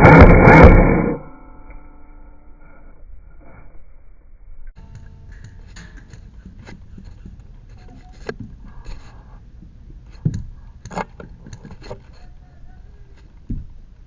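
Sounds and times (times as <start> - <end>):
loud thump: 0.0 - 1.4.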